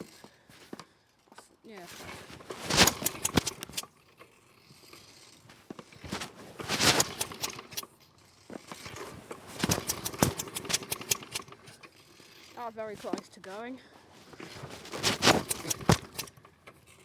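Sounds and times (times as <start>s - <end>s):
mower engine being pull-started: 1.7s - 17.0s.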